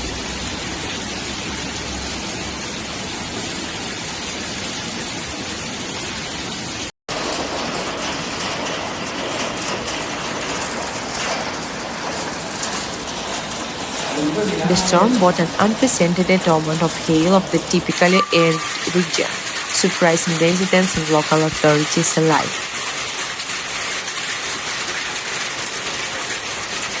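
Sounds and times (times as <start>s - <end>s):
hail falling: 0.0s - 27.0s
hailstones ticking: 7.1s - 27.0s.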